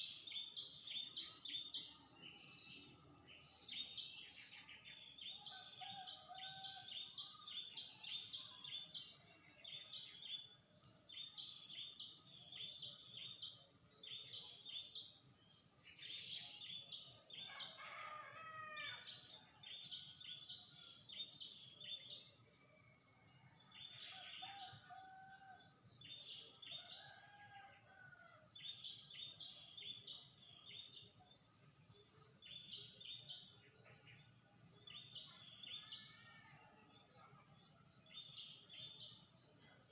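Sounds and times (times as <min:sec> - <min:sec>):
rooster crowing: 0:17.5 - 0:19.0.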